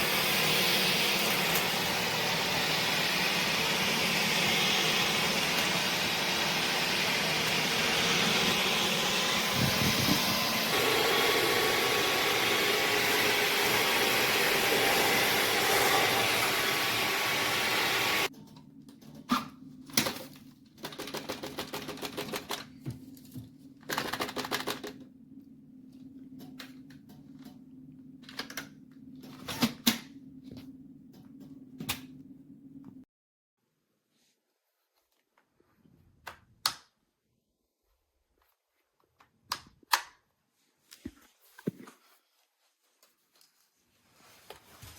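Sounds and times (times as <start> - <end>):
cordless vacuum running: 0.0 - 18.3.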